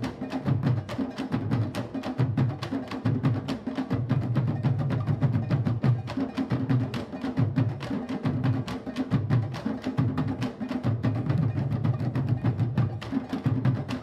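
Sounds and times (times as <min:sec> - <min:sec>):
drum ensemble playing: 0:00.0 - 0:14.0.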